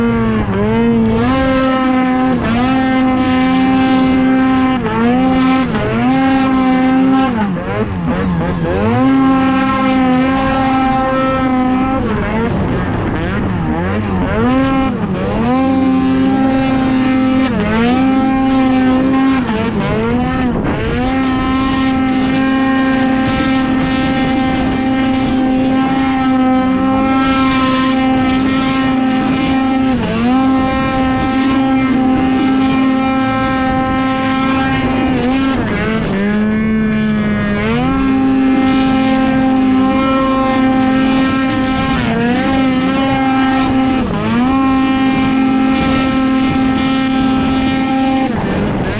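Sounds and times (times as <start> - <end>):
snowmobile engine at full throttle: 0.0 - 48.9.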